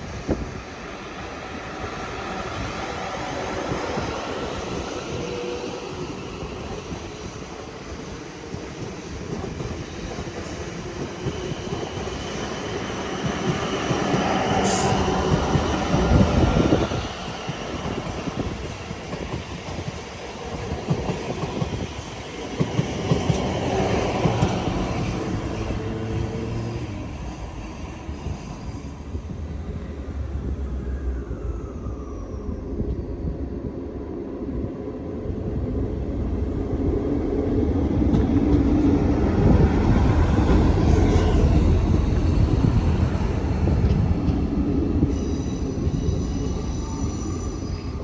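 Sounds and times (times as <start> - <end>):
train running past: 0.0 - 48.0
rail clicks: 8.5 - 26.8, 37.7 - 46.7
high squeal: 45.0 - 48.0.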